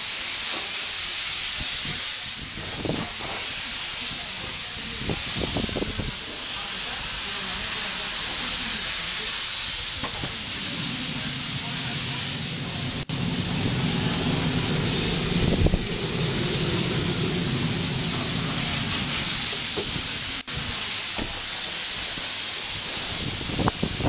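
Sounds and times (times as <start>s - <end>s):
steady loud hiss: 0.0s - 24.0s
engine low hum: 10.1s - 20.5s.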